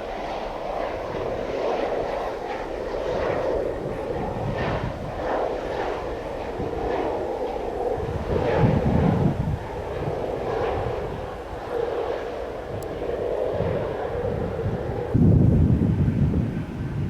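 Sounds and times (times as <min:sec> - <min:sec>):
jet airliner engines rushing: 0:00.0 - 0:17.0.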